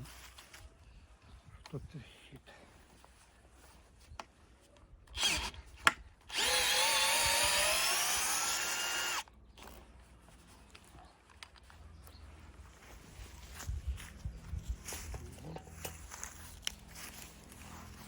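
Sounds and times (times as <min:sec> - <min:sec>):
electric drill whining: 0:05.1 - 0:05.6, 0:06.3 - 0:09.3.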